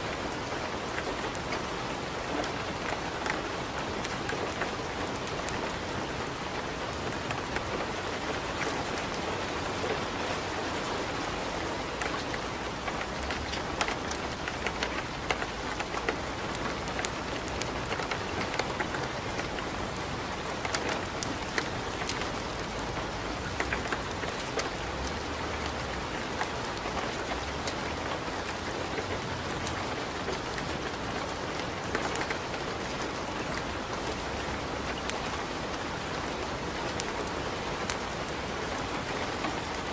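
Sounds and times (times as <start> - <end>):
steady rain: 0.0 - 39.9
wood fire crackling: 0.2 - 10.5, 11.1 - 39.9.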